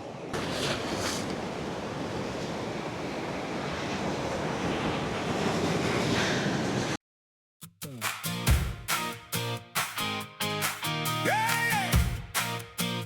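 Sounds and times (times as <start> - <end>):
ocean surf washing in: 0.0 - 7.0
wind buffeting the microphone: 0.0 - 7.0.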